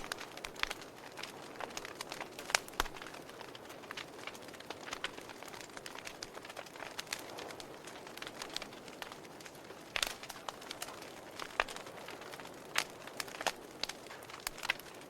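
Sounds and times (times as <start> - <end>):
soft hiss of flames: 0.0 - 15.0
wood fire crackling: 0.0 - 15.0.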